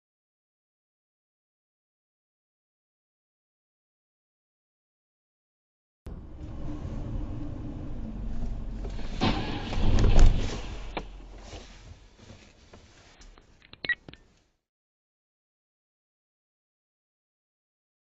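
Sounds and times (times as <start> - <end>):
loud rushing noise: 6.1 - 11.6
car driving rumble: 6.1 - 14.1.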